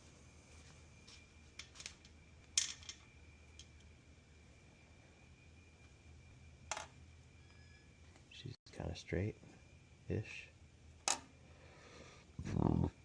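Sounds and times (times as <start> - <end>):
metal bearing parts clinking: 1.6 - 3.9.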